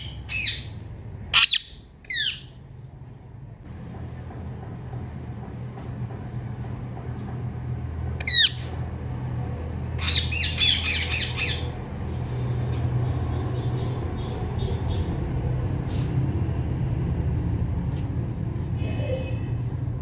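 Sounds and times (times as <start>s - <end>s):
parrot chirps: 0.0s - 2.6s, 8.2s - 8.8s, 10.0s - 11.8s
parrot squawk: 0.0s - 2.6s, 8.2s - 8.7s, 10.0s - 11.8s.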